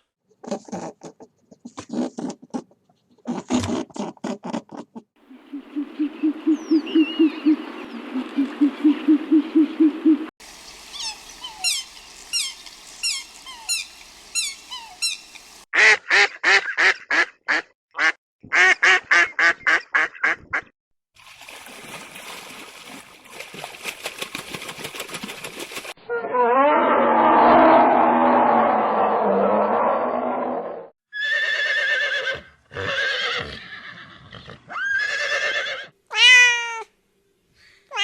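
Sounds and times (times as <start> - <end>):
animal and bird calls: 5.3 - 15.6.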